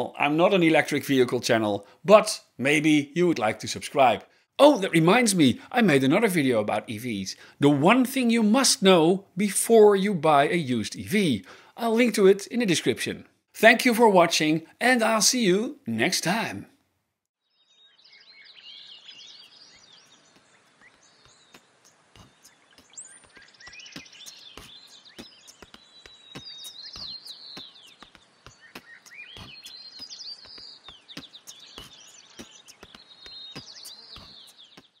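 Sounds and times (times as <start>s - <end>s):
small birds chirping: 17.4s - 35.0s.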